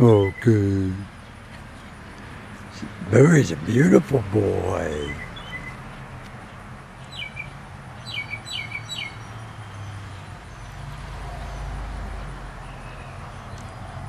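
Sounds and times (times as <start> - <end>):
small bird chirping: 5.0 - 10.9.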